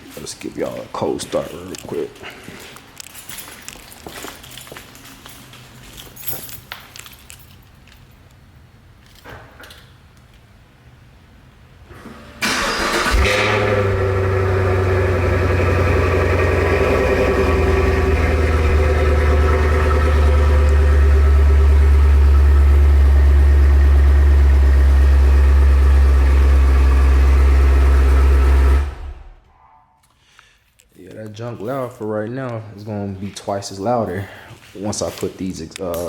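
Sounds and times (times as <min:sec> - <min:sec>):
starter motor cranking: 0:12.4 - 0:20.9
car engine idling: 0:12.4 - 0:29.4.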